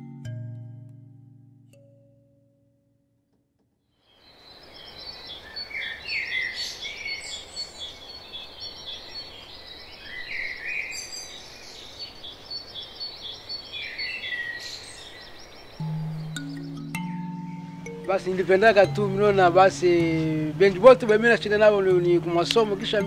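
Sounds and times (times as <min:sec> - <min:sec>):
steady background hiss: 0:04.1 - 0:23.0
bird warbling phrase: 0:18.0 - 0:23.0.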